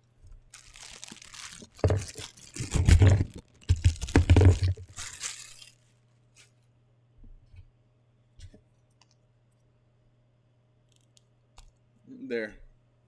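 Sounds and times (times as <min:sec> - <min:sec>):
packaging tearing and crinkling: 0:00.5 - 0:05.8
handling bumps: 0:00.6 - 0:05.7.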